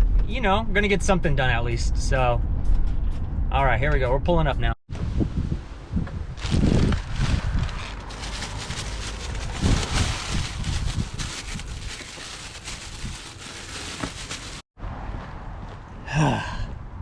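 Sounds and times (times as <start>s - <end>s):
wind buffeting microphone: 4.9s - 14.6s
rustling and small knocks: 8.0s - 14.6s.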